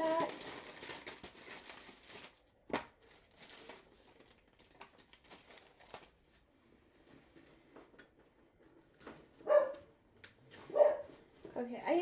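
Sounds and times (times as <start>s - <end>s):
plastic packaging crinkling: 0.0s - 6.5s.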